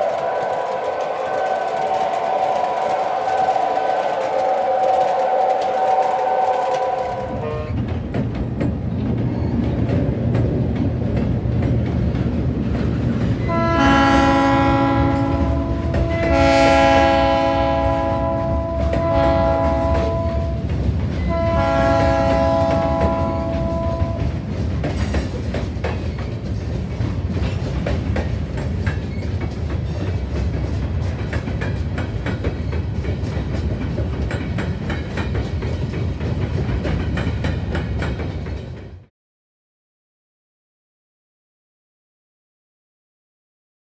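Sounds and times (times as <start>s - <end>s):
train air horn: 0.0s - 7.8s, 13.4s - 24.3s
freight cars rumbling and clacking: 7.0s - 13.6s, 17.7s - 39.1s.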